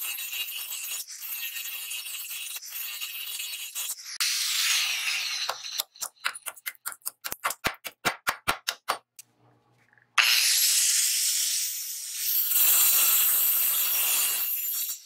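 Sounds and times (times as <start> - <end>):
hammer tapping rapidly: 5.5 - 9.1
angle grinder cutting wood: 12.1 - 15.0.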